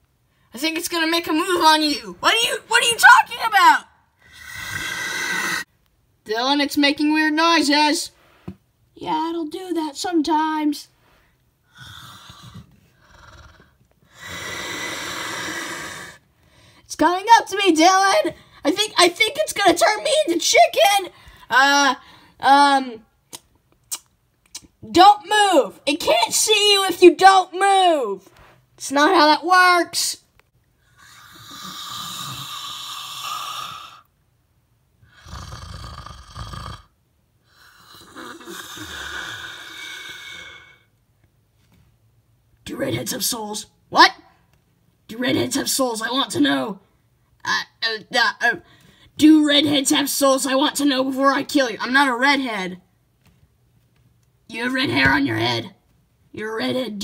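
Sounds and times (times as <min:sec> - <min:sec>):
lizard hissing: 0:04.2 - 0:05.7, 0:11.7 - 0:16.2, 0:30.9 - 0:34.1, 0:35.1 - 0:36.8, 0:37.5 - 0:40.9
rasping breathy creature noises: 0:04.2 - 0:05.7, 0:11.7 - 0:16.2, 0:30.9 - 0:34.1, 0:35.0 - 0:36.9, 0:37.5 - 0:40.9.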